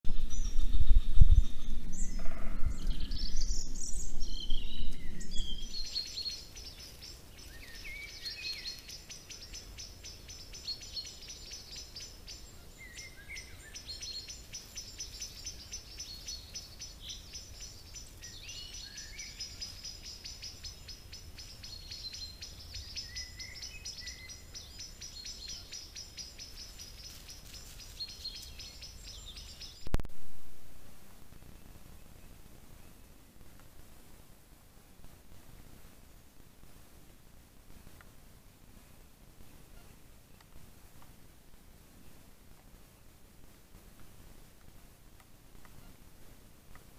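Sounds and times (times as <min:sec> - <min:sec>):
low rumble: 0:00.0 - 0:06.1
birds calling and singing: 0:00.1 - 0:29.9.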